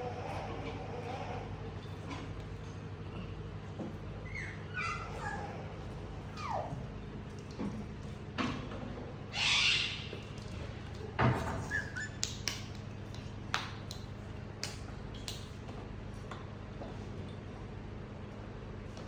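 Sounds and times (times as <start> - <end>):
steady low hum: 0.0 - 19.0
light clicks and taps: 10.2 - 17.4.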